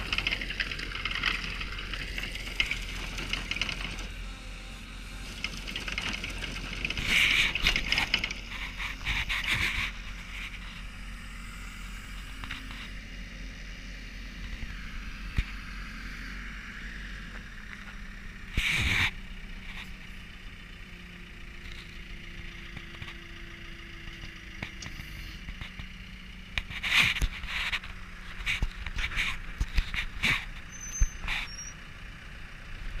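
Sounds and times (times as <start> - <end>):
milling drum scraping asphalt: 0.0 - 11.4, 17.2 - 20.2, 26.6 - 31.8
engine hum: 0.0 - 33.0.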